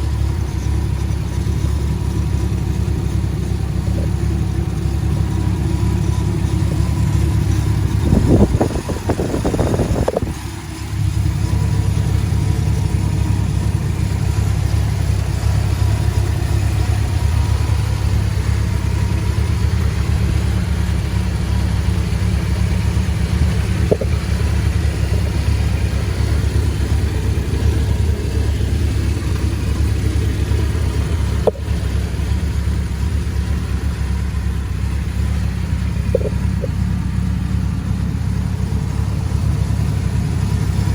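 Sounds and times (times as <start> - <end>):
pickup truck engine drone: 0.0 - 40.9
faint clicks: 36.1 - 36.8.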